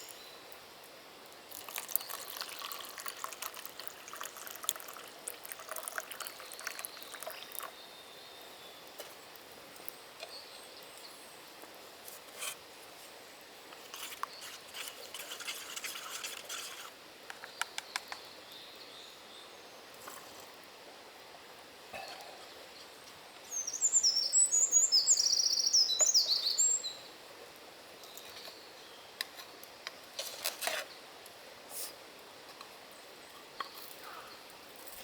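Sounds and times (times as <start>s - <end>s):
high bird chirps: 23.5s - 27.0s.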